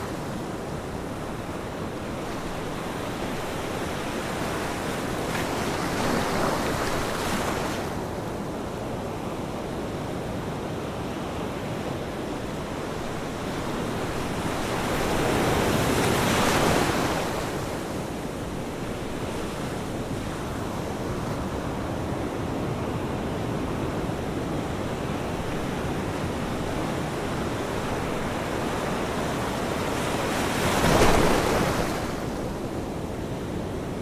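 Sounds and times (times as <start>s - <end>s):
ocean surf washing: 10.9s - 34.0s
waves breaking: 25.4s - 32.7s.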